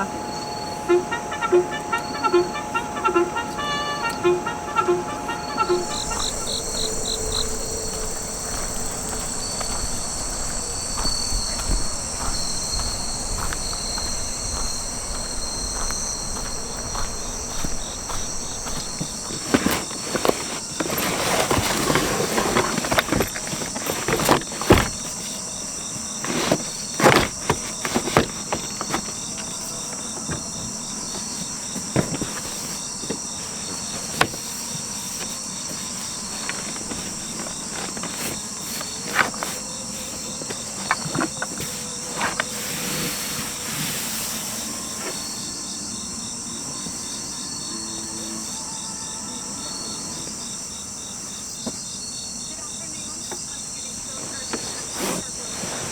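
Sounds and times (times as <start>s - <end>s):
crickets and night insects chirping: 0.0s - 55.9s
knocks clicks and rustling: 1.0s - 42.6s.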